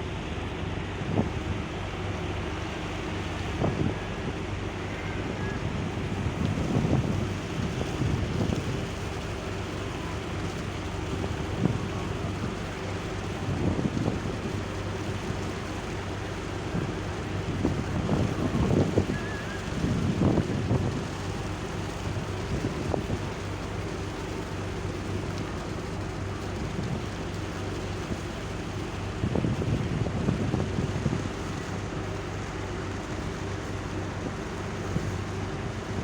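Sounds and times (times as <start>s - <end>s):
ship engine humming: 0.0s - 36.0s
wind buffeting microphone: 0.4s - 36.0s.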